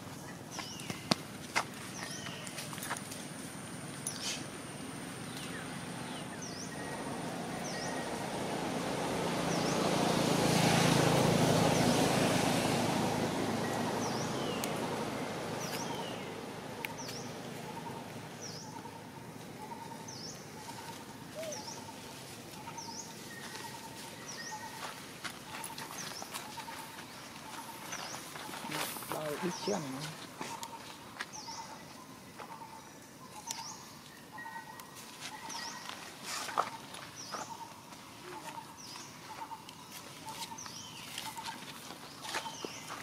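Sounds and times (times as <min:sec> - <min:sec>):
birds chirping: 0:00.0 - 0:43.0
broad rushing noise: 0:07.0 - 0:17.2.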